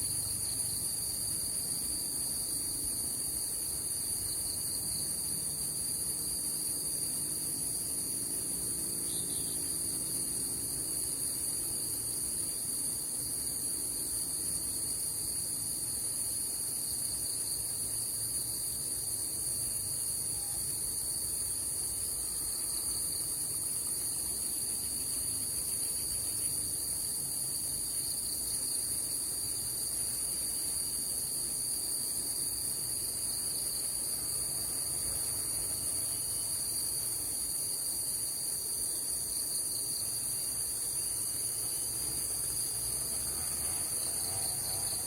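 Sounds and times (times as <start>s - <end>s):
insects chirring shrilly: 7.1s - 13.5s, 19.6s - 45.0s.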